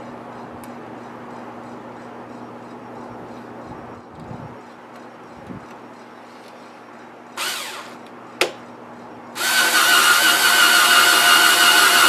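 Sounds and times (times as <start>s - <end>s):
power drill boring into wood: 7.4s - 8.0s, 9.4s - 12.0s.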